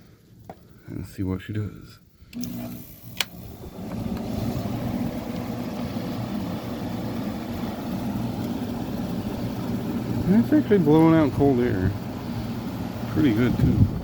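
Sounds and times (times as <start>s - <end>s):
air conditioner humming: 0.0s - 14.0s
air conditioner switch click: 2.3s - 4.4s.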